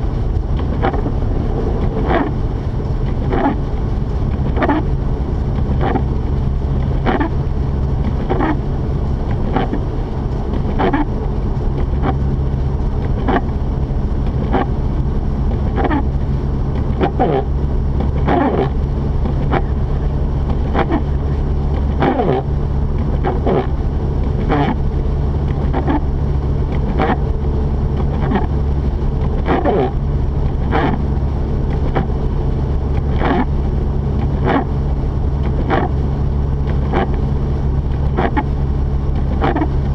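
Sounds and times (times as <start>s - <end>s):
car engine droning: 0.0s - 39.9s
road noise: 0.0s - 39.9s
windshield wiper swishing: 0.0s - 39.9s.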